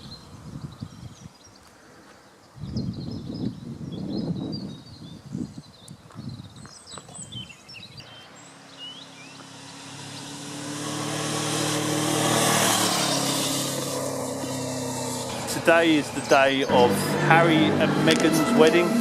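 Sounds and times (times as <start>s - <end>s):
birds chirping: 0.0s - 19.0s
vehicle engine approaching: 8.0s - 19.0s.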